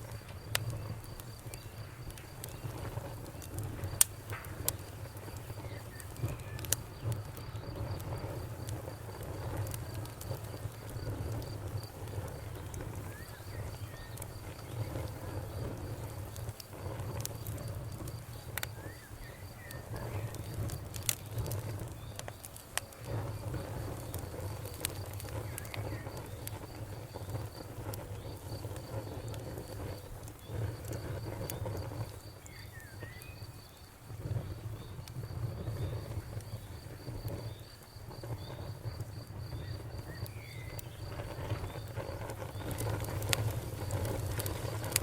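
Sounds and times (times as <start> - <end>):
cricket chirping: 0.0 - 45.0
wood fire crackling: 0.0 - 45.0.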